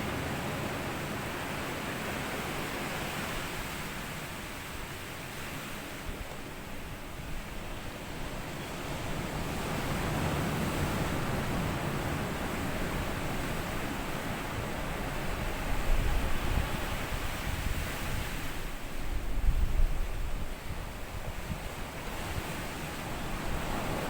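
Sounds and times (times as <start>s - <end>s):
wind buffeting microphone: 8.9s - 24.0s
sea waves washing on beach: 20.0s - 24.0s.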